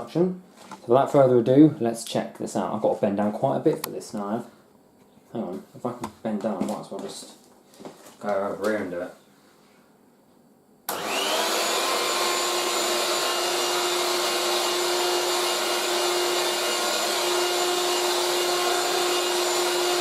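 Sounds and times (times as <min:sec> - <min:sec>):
handheld vacuum cleaner running: 0:10.9 - 0:20.0.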